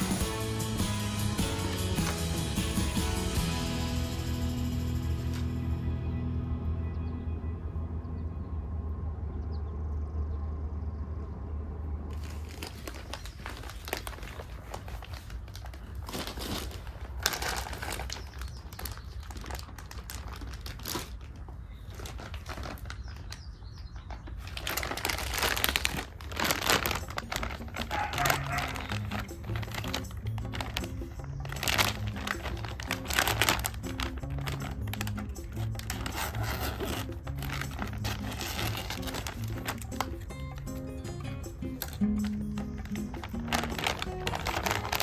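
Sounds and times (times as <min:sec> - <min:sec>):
soft background music: 0:00.0 - 0:08.9, 0:26.8 - 0:45.0
plastic packaging crinkling: 0:12.1 - 0:45.0.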